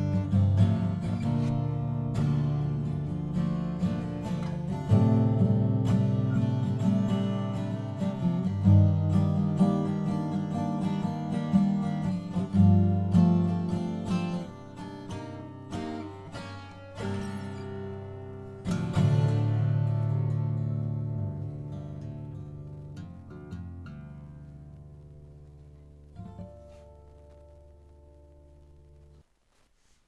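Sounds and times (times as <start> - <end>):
acoustic guitar strummed and picked: 0.0 - 30.0.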